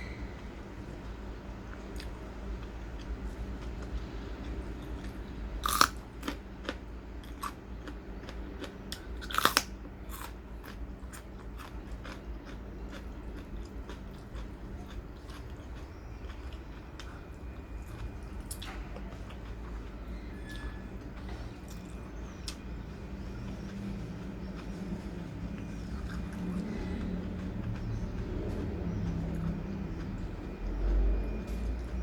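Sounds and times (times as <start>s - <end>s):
chewing clicks: 1.7s - 32.0s
loud crunching bites: 5.6s - 8.0s, 8.6s - 14.5s.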